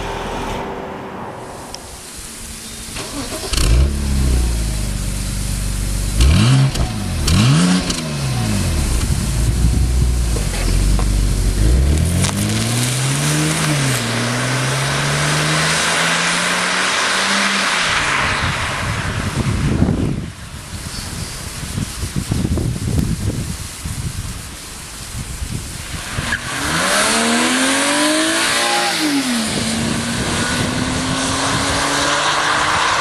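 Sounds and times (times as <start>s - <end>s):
car engine revving: 0.0s - 19.5s, 26.5s - 33.0s
hiss: 1.6s - 6.2s, 20.3s - 29.8s.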